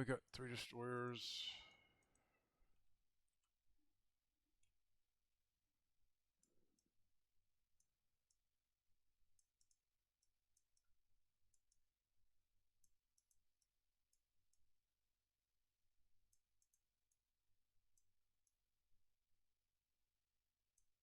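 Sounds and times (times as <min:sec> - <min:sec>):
faint small clicks: 0:09.2 - 0:12.0, 0:12.6 - 0:14.7, 0:16.0 - 0:18.6, 0:20.6 - 0:21.0.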